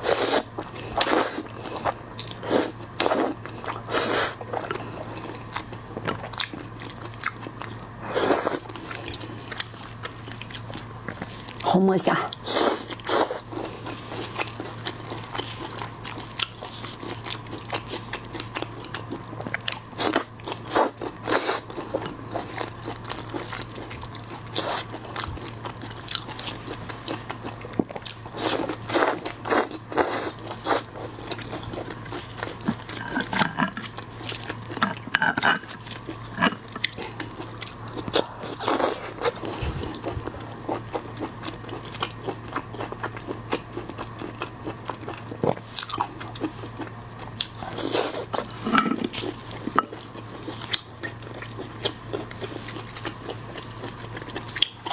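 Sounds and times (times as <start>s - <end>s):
steady low hum: 0.0s - 54.9s
wet chewing: 12.3s - 54.9s.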